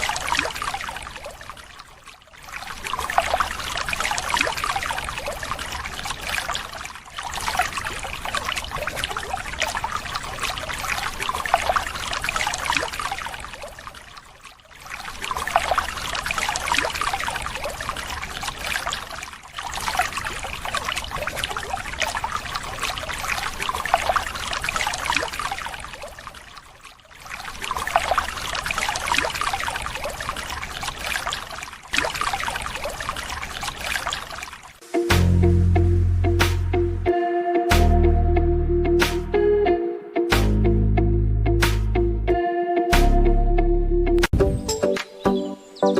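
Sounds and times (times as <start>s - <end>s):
water pouring and splashing: 0.0s - 35.4s.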